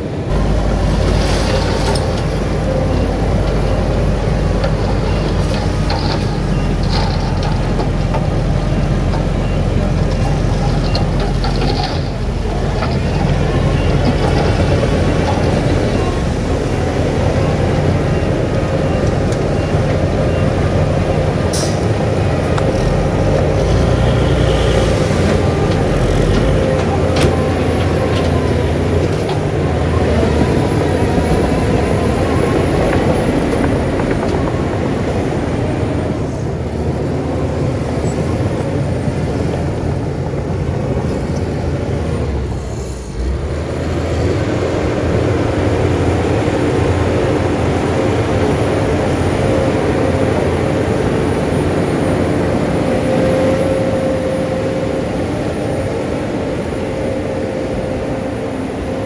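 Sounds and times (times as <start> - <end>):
heavy machinery diesel engine: 0.0 - 59.0.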